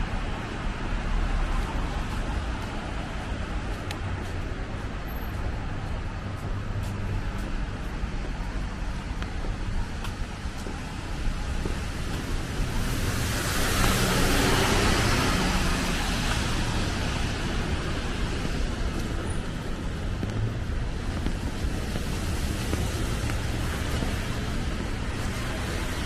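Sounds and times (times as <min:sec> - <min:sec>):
low rumble of traffic: 0:00.0 - 0:26.0
vehicle tyre hiss passing: 0:11.8 - 0:19.6.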